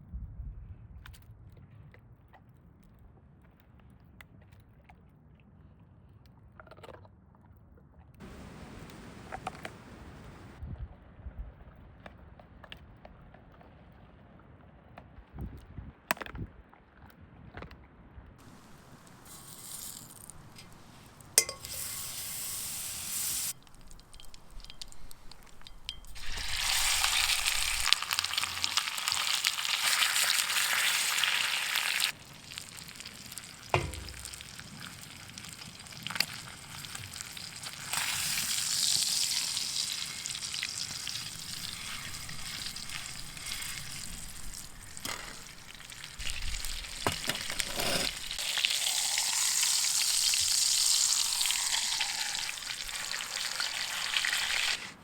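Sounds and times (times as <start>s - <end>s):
steak sizzling in a pan: 18.4s - 55.0s
utensil knocks: 33.7s - 34.4s.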